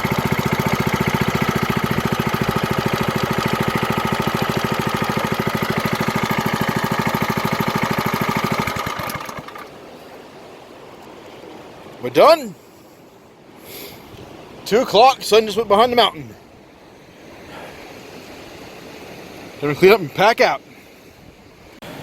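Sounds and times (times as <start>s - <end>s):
small gasoline engine running: 0.0s - 9.7s.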